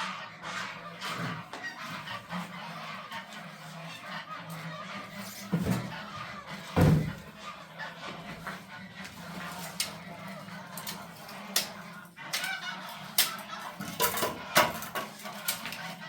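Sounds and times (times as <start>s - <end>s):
farm poultry calling: 0.0s - 16.0s
loud thumps: 6.8s - 7.2s.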